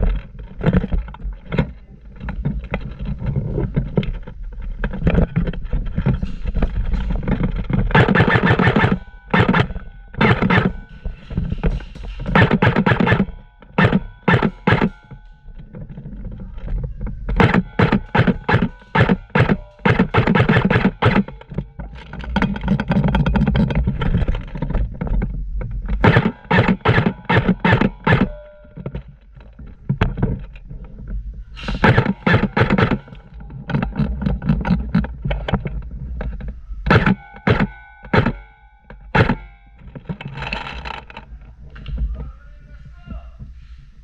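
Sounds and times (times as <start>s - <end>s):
low rumbling noise: 0.0s - 36.9s, 38.8s - 44.0s
airsoft guns firing: 7.3s - 11.0s, 11.6s - 15.2s, 17.3s - 21.6s, 26.0s - 28.4s, 31.8s - 33.2s, 36.9s - 38.5s, 39.1s - 39.5s.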